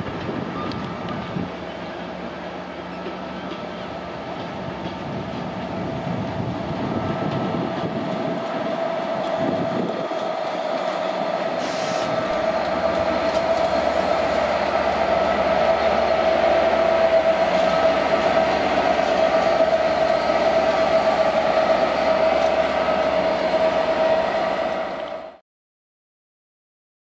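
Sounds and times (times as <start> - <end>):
diesel train moving slowly: 0.0 - 25.4.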